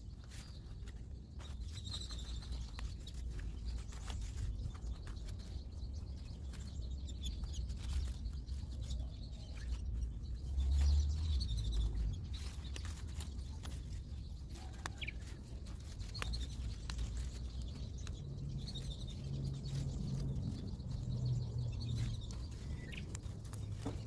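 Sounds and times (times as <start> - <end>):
birds chirping: 0.1 - 24.0
low gusty rumble: 16.6 - 24.0.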